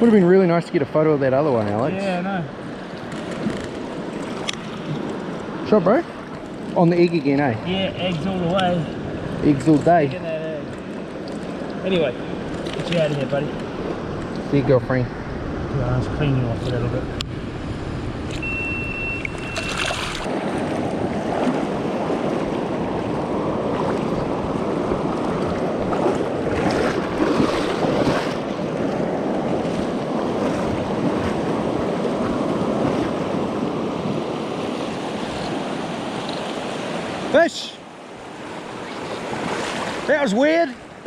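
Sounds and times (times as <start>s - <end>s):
river water rushing: 0.0s - 15.9s, 18.3s - 41.0s
wind rumbling on microphone: 11.5s - 37.3s.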